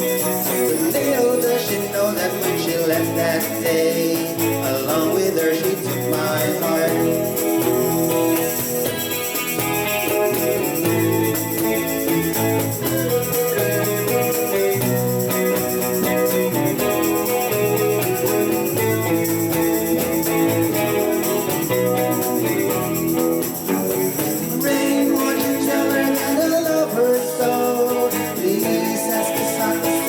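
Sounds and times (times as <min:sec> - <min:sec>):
bass line: 0:00.0 - 0:30.0
guitar: 0:00.0 - 0:30.0
pop ballad instrumental: 0:00.0 - 0:30.0.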